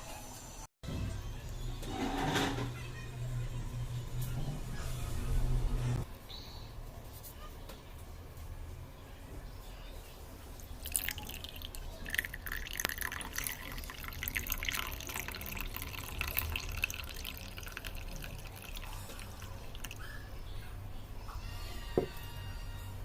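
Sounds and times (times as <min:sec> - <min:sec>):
tea pouring and splashing: 0:10.6 - 0:20.0.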